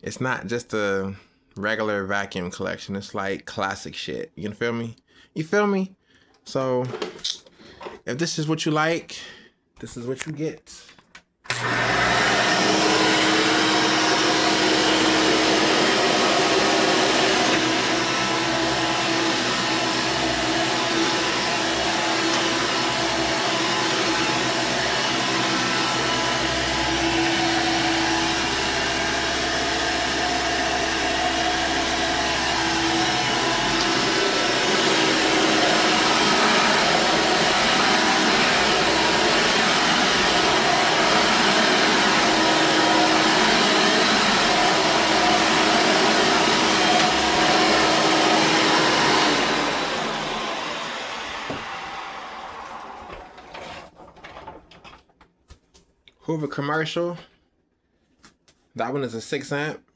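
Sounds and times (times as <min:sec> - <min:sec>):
vacuum cleaner running: 0:11.5 - 0:53.9.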